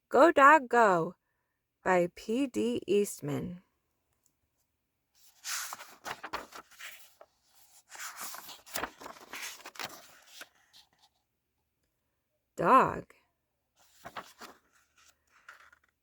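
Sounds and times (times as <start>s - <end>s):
paper pages rustling and turning: 5.2s - 11.2s, 13.8s - 16.0s.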